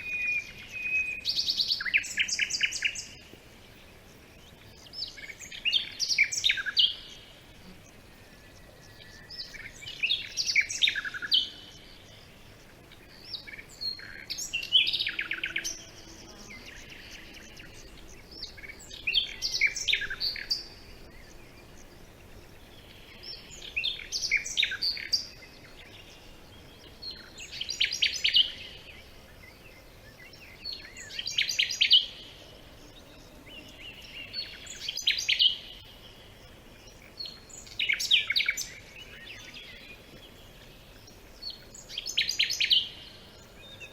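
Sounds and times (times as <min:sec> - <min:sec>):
faint steady background noise: 0:00.0 - 0:43.9
songbird singing trills: 0:00.0 - 0:43.9.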